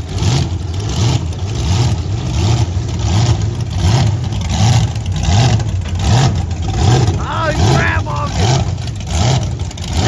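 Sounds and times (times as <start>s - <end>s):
monster truck engines idling: 0.0s - 10.0s.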